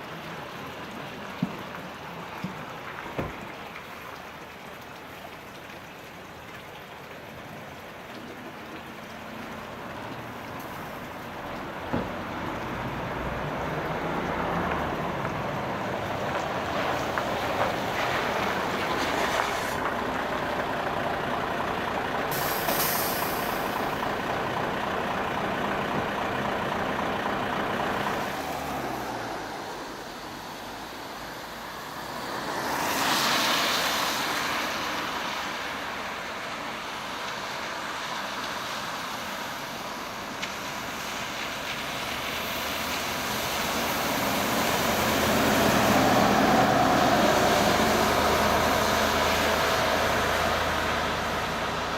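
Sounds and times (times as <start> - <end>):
diesel bus running: 9.3 - 51.9
air hiss: 22.3 - 23.9.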